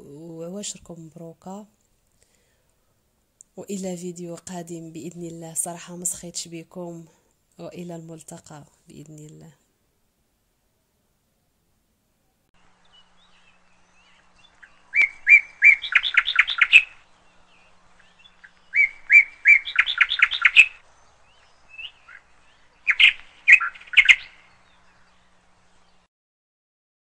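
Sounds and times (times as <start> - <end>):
songbird singing: 12.1 - 26.1.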